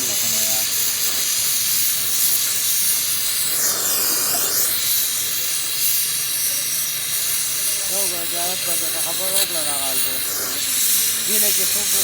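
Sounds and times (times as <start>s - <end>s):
gas torch flame hissing: 0.0s - 12.0s.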